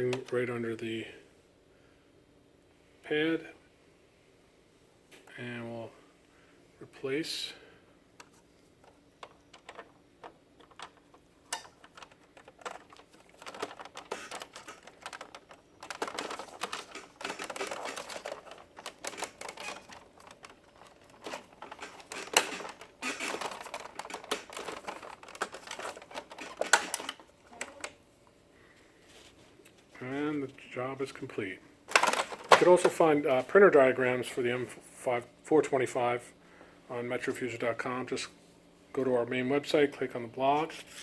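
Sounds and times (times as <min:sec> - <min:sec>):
plastic parts clicking and scraping: 0:08.2 - 0:28.0, 0:31.9 - 0:33.0.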